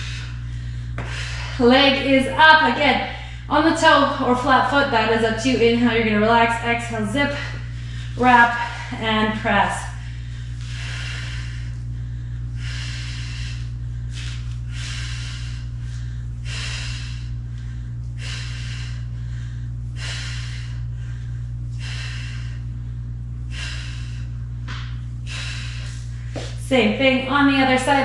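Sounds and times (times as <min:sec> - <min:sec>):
woman breathing hard: 0:00.0 - 0:02.4, 0:03.0 - 0:03.5, 0:07.2 - 0:09.1, 0:09.8 - 0:26.6
steady low hum: 0:00.0 - 0:28.0.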